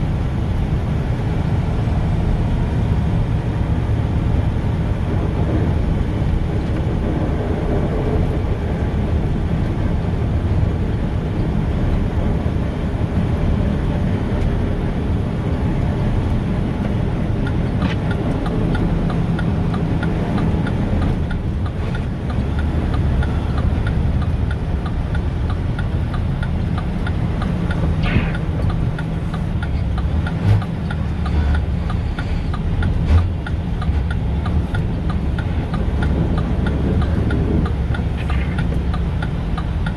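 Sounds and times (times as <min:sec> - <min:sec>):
truck diesel engine rumble: 0:00.0 - 0:39.9
faint regular ticking: 0:16.2 - 0:39.9.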